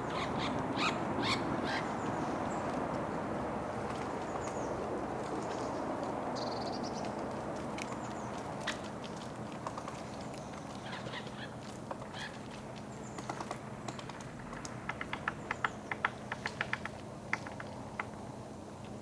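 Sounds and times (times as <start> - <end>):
low background hum: 0.0 - 19.0
woodpecker pecking at wood: 13.1 - 18.2.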